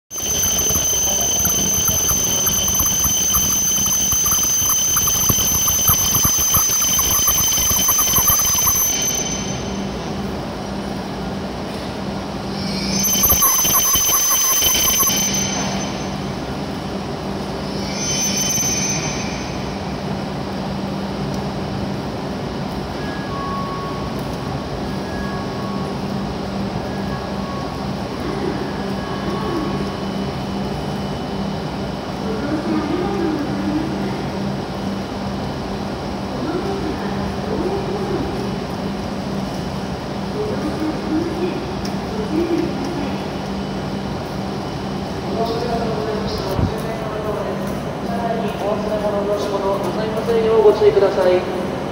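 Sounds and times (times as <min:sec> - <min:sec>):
high-pitched braking bursts: 0:00.1 - 0:10.1, 0:12.5 - 0:16.4
high steady train whine: 0:00.1 - 0:51.9
steady low train hum: 0:00.1 - 0:51.9.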